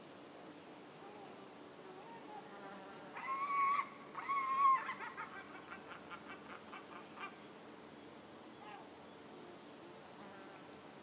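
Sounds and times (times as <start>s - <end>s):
bird nasal calls: 8.6s - 8.9s.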